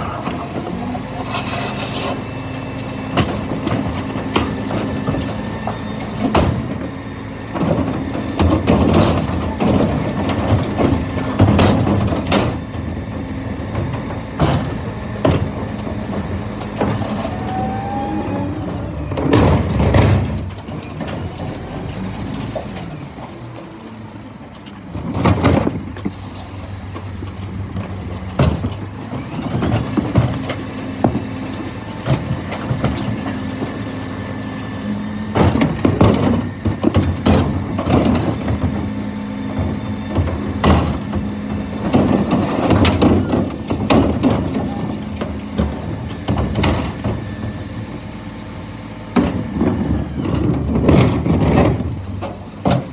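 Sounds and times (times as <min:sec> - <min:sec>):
diesel truck engine running: 0:00.0 - 0:52.9.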